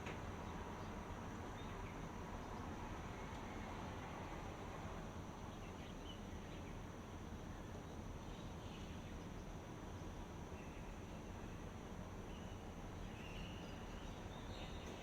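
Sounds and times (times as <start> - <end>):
faint bird chirps: 12.3 - 15.0.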